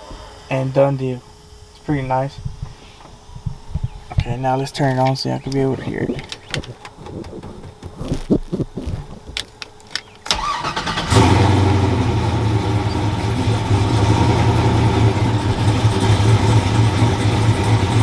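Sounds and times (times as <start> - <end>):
starter clicks: 4.8 - 11.1
truck engine starting and idling: 9.7 - 18.0.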